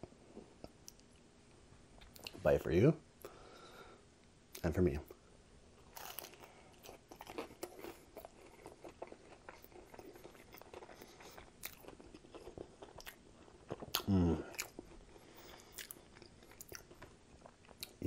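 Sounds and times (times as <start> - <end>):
crunchy chewing: 5.8 - 18.0
person humming: 14.0 - 14.5.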